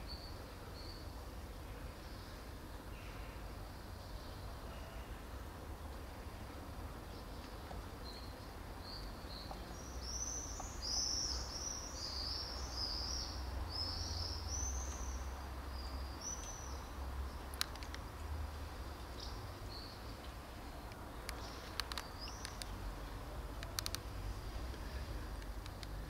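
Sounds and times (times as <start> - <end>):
songbird singing high chirps: 0.0 - 1.2, 8.0 - 17.6, 18.8 - 22.8.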